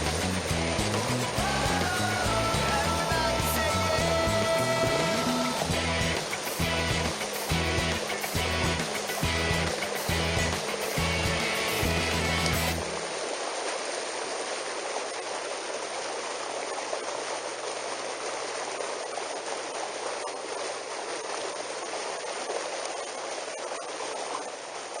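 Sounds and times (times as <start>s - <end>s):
music: 0.0s - 13.0s
flowing water rushing: 0.0s - 25.0s.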